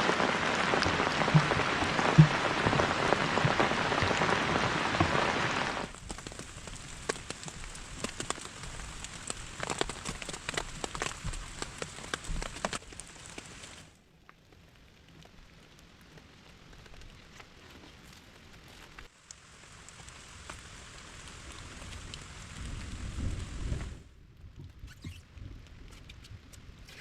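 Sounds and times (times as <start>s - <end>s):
raindrops tapping sharply: 0.0s - 13.8s
heavy rain falling: 0.0s - 13.9s, 19.2s - 24.1s.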